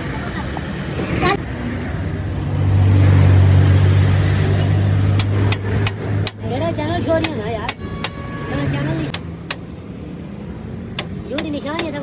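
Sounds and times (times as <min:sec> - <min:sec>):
voice: 0:06.4 - 0:07.8, 0:11.2 - 0:12.0.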